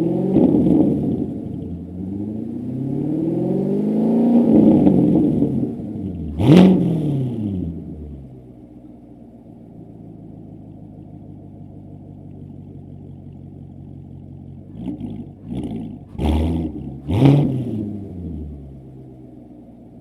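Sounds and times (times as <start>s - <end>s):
car engine idling: 0.0s - 2.9s, 4.6s - 20.0s
engine revving: 0.0s - 8.4s, 14.6s - 19.1s.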